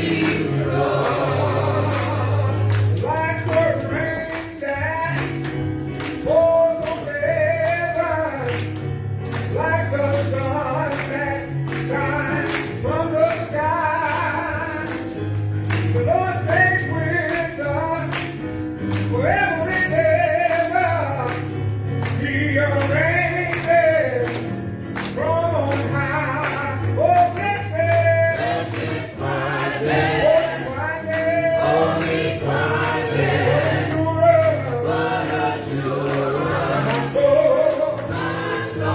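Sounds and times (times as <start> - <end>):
gospel choir singing: 0.0 - 4.6, 28.0 - 38.9
band accompaniment: 0.0 - 38.9.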